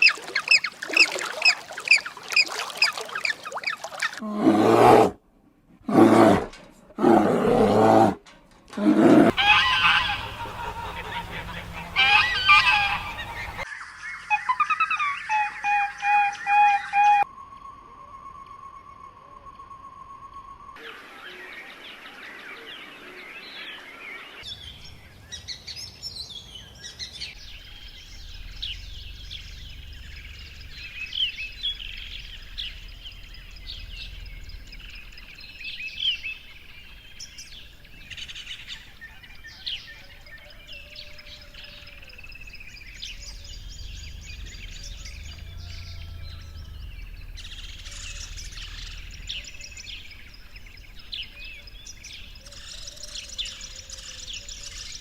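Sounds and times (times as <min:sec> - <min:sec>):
small birds chirping: 0:24.3 - 0:55.0
low steady rumble: 0:27.4 - 0:35.9, 0:42.4 - 0:52.4.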